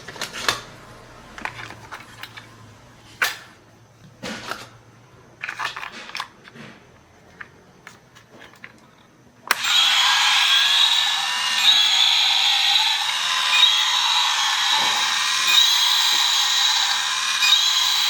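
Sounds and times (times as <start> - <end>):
small parts clicking and scraping: 1.3 - 2.6, 5.4 - 18.0
power tool whining: 9.5 - 18.0.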